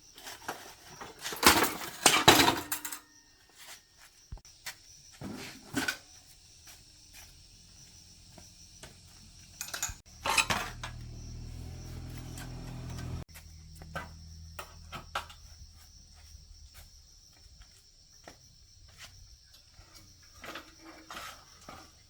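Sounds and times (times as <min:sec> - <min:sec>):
metal tools clinking: 0:01.0 - 0:03.1, 0:09.5 - 0:11.2
metal clatter: 0:09.6 - 0:11.2.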